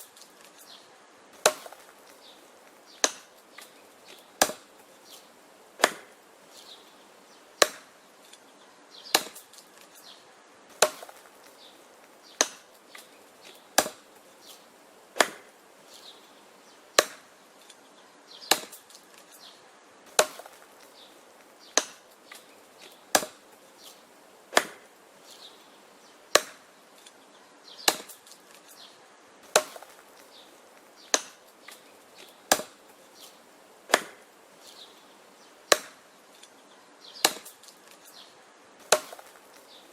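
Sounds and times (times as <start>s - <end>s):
axe chopping wood: 1.4s - 4.7s, 5.8s - 6.2s, 7.6s - 8.0s, 9.1s - 9.9s, 10.7s - 11.6s, 12.3s - 14.1s, 15.2s - 15.5s, 17.0s - 17.4s, 18.4s - 19.3s, 20.1s - 23.4s, 24.5s - 24.9s, 26.3s - 26.7s, 27.8s - 28.7s, 29.4s - 30.3s, 31.0s - 32.8s, 33.9s - 34.3s, 35.7s - 36.0s, 37.2s - 38.1s, 38.8s - 39.6s.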